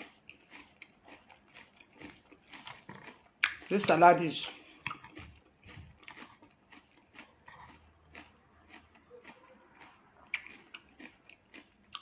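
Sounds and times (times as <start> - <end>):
chewing raw vegetables: 0.0 - 12.0
wet mouth clicks: 2.6 - 3.7, 4.6 - 6.4, 8.8 - 11.0.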